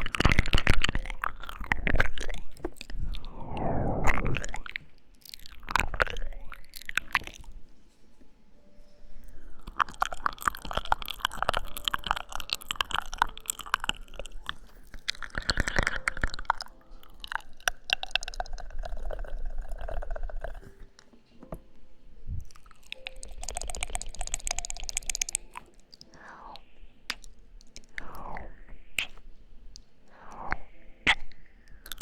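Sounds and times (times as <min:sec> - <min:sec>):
lip and tongue smacks: 0:09.6 - 0:20.8, 0:22.4 - 0:32.0.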